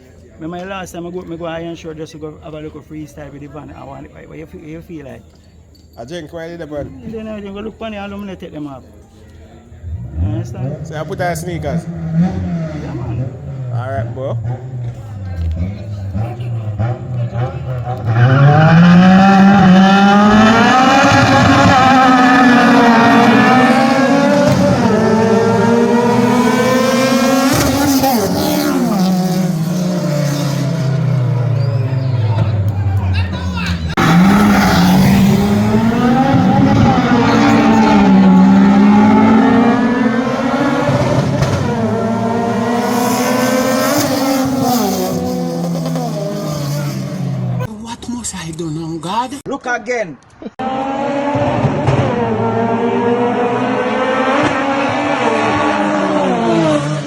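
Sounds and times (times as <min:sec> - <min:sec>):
race car engine accelerating: 0:09.8 - 0:47.7, 0:50.6 - 0:57.0.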